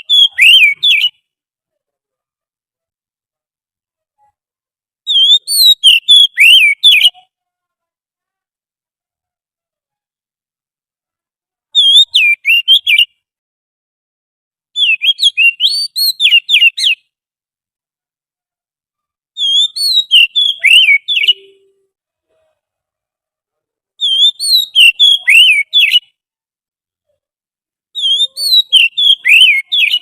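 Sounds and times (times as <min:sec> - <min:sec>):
bird song whistled notes: 0:00.0 - 0:01.3, 0:05.1 - 0:07.3, 0:11.7 - 0:13.2, 0:14.8 - 0:17.1, 0:19.4 - 0:21.8, 0:24.0 - 0:26.2, 0:28.0 - 0:30.0.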